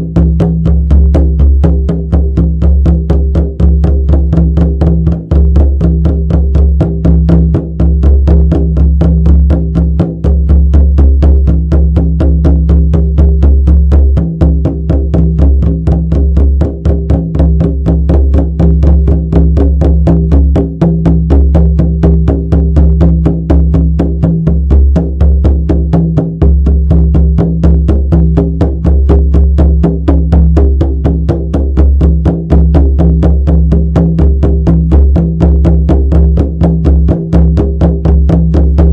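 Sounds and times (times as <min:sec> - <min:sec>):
frame drum beaten steadily: 0:00.0 - 0:38.9.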